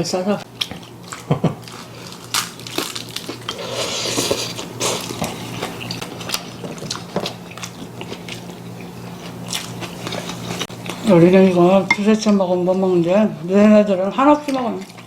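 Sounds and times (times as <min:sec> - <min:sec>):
low steady hum: 0:00.0 - 0:15.0
person chewing and biting: 0:00.6 - 0:11.0.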